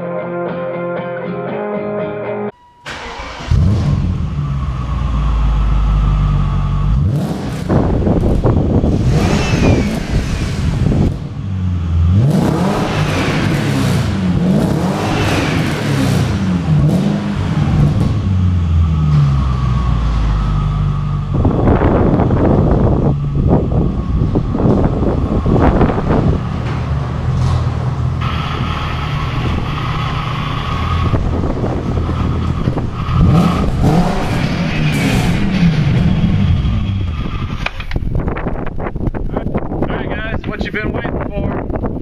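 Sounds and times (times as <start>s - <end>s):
music: 0.0s - 2.6s
car engine revving: 2.9s - 39.3s.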